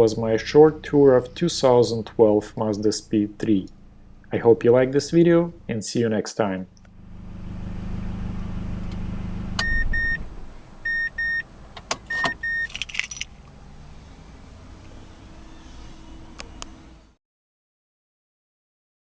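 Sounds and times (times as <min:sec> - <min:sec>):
car engine idling: 0:00.0 - 0:05.8, 0:06.6 - 0:17.1
car warning chime beeps: 0:09.6 - 0:12.8
keys jingling: 0:12.1 - 0:13.4.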